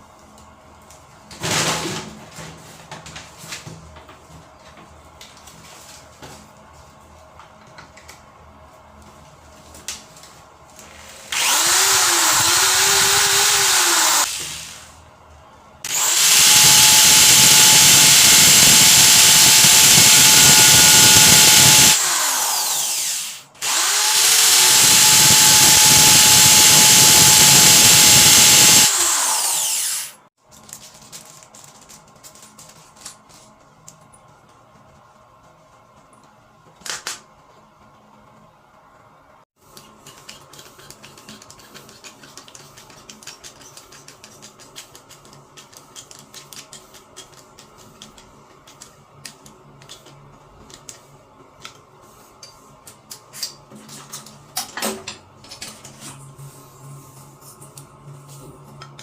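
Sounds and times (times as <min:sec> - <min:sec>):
electric drill running: 0:11.0 - 0:14.9, 0:15.9 - 0:30.2.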